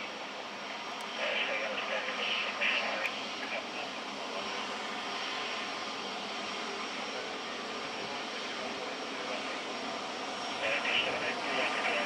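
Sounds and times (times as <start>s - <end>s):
aircraft turbine engine whine: 0.0s - 12.0s.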